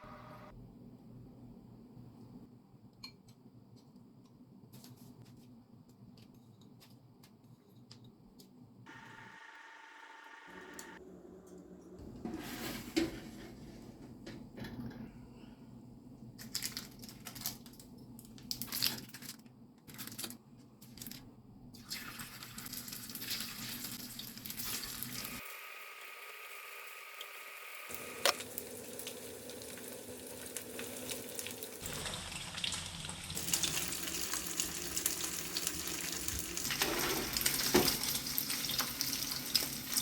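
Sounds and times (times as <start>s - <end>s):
clicks and knocks handling food: 3.0s - 8.6s, 16.4s - 21.3s
packaging crinkling: 16.4s - 21.3s
food frying in a pan: 21.8s - 40.0s.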